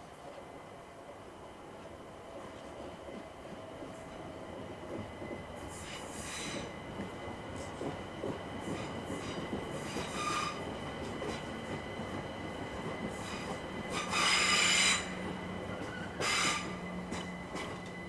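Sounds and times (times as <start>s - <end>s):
electric train running past: 0.0s - 18.0s
high-pitched wheel squeal: 13.4s - 17.8s.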